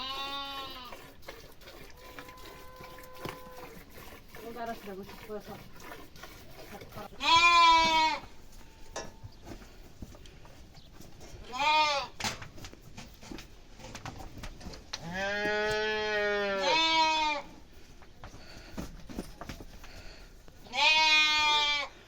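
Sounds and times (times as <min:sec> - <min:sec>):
livestock bleating: 0:00.0 - 0:00.9, 0:02.2 - 0:03.7, 0:07.2 - 0:08.8, 0:11.4 - 0:12.2, 0:15.0 - 0:17.5, 0:20.6 - 0:22.0.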